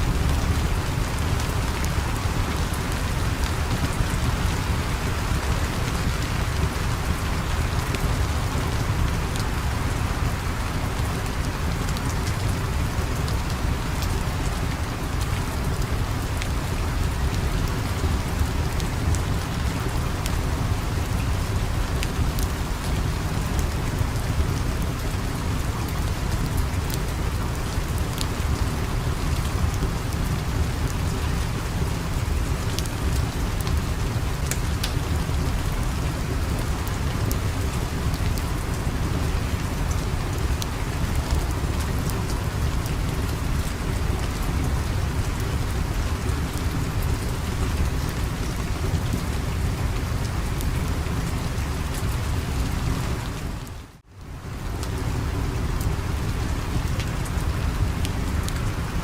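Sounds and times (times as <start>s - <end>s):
steady rain: 0.0s - 59.0s
fire crackling: 20.2s - 54.0s.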